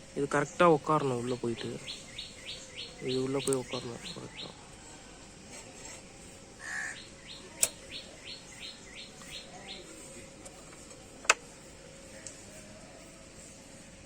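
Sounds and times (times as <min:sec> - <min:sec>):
bird chirping: 0:00.2 - 0:05.0, 0:06.6 - 0:10.2
sharp clicks: 0:07.6 - 0:08.0.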